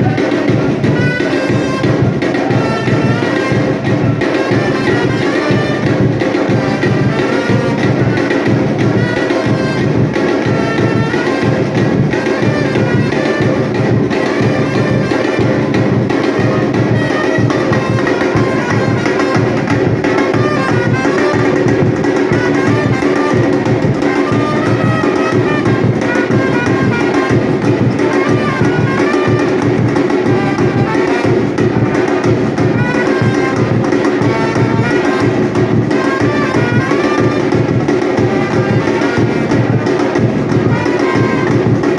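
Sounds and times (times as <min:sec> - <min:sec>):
melodic line over drums: 0:00.0 - 0:41.9
percussion ensemble drumming: 0:00.0 - 0:41.9.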